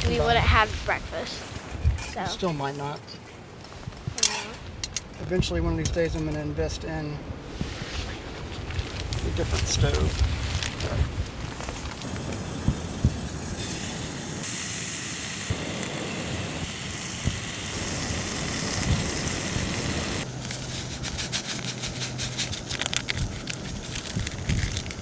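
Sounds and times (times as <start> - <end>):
bacon crackling and popping: 11.5 - 25.0
bacon sizzling in a pan: 12.0 - 20.3.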